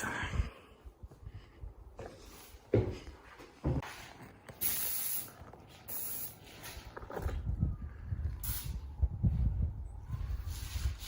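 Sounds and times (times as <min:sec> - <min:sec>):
paint sprayer hissing: 0:04.5 - 0:06.8.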